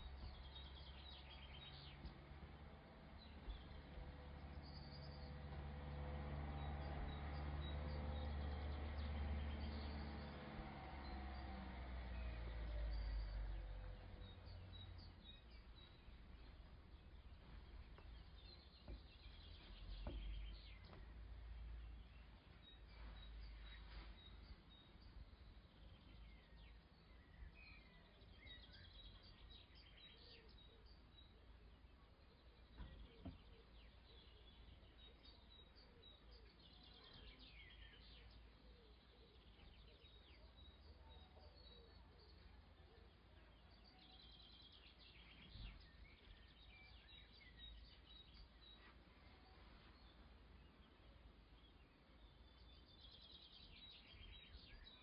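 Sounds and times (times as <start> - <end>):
low background rumble: 0.0 - 33.6
faint bird chirps and trills: 0.0 - 55.0
soft thumps: 17.3 - 21.3.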